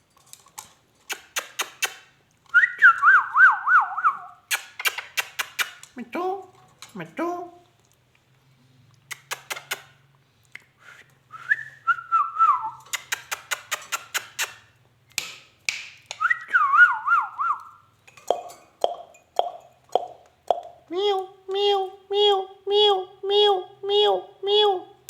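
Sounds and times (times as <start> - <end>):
parrot clicks and chirps: 1.1 - 2.1, 4.4 - 6.0, 9.1 - 9.9, 12.8 - 14.7
parrot whistling: 16.2 - 17.8.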